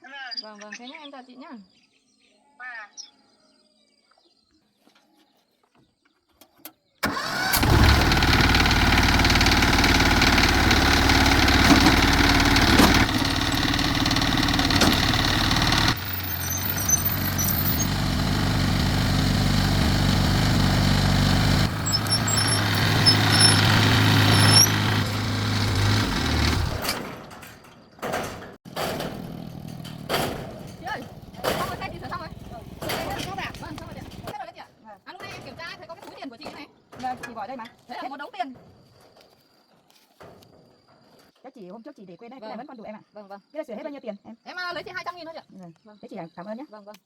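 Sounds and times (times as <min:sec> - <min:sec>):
tractor engine running: 0:07.0 - 0:34.4.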